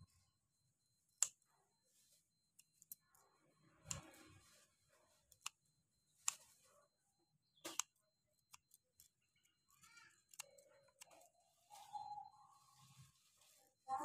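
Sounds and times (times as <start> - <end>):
sharp clicks: 7.6 - 9.5, 10.3 - 11.2.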